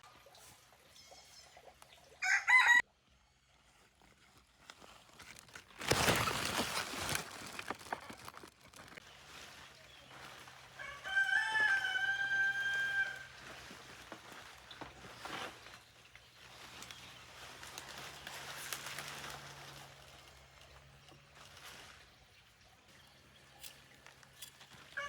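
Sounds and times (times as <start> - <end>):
rooster crowing: 2.2 - 2.8, 10.7 - 13.4.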